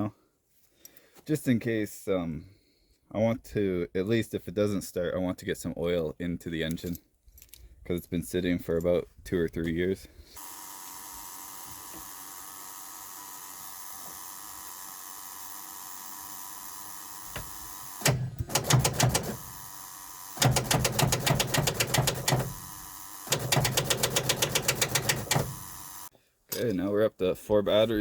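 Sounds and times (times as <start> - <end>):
diesel engine cranking: 17.2 - 26.1.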